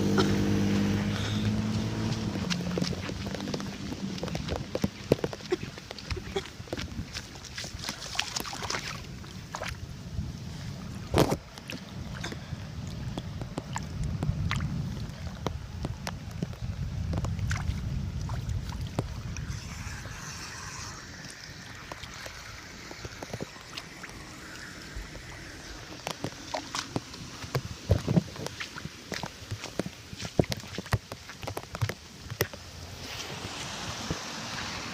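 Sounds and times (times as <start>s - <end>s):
water gurgling into a sewer: 16.7s - 29.3s.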